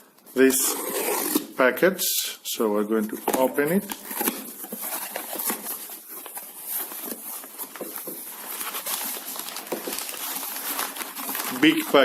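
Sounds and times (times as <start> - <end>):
package rustling: 3.0 - 12.0.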